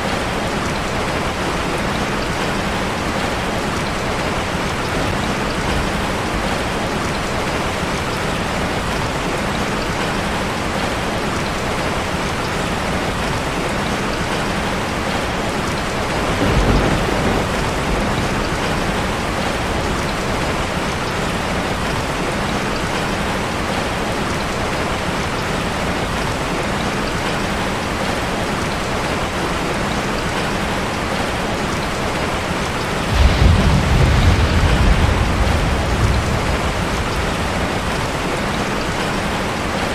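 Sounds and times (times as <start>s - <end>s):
rain on a metal roof: 0.0s - 39.9s
low rumble: 33.1s - 38.3s.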